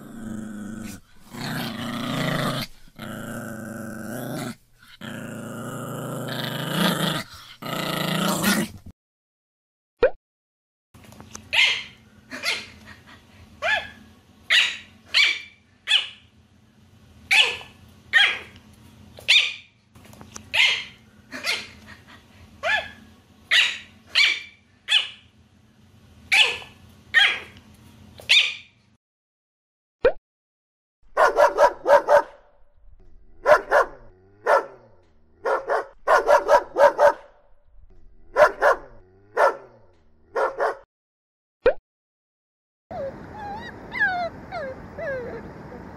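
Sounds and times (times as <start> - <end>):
dog yapping: 11.5 - 12.7, 13.6 - 16.2, 17.3 - 18.5, 19.3 - 19.7, 20.5 - 21.8, 22.6 - 25.2, 26.3 - 27.5, 28.3 - 28.7, 31.2 - 32.4, 33.4 - 34.8, 35.4 - 37.2, 38.4 - 39.7, 40.4 - 40.8
dog barking: 13.6 - 16.2, 17.3 - 18.5, 20.6 - 21.7, 22.6 - 25.2, 26.3 - 27.5, 31.2 - 32.4, 33.4 - 37.3, 38.3 - 40.9.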